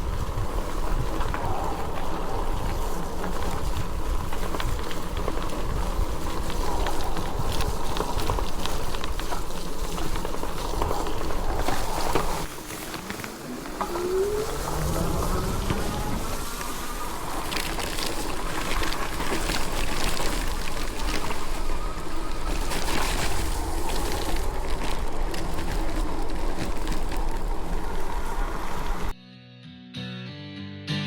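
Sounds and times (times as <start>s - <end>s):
bike tyres rolling: 0.0s - 29.1s
wind buffeting microphone: 0.0s - 29.1s
rising whine: 13.2s - 17.5s.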